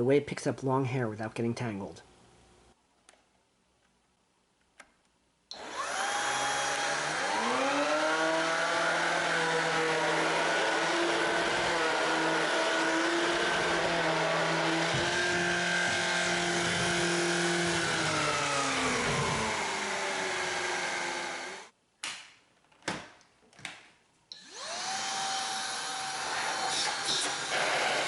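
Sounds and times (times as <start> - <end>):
vacuum motor whine: 5.5 - 21.7, 24.3 - 28.0.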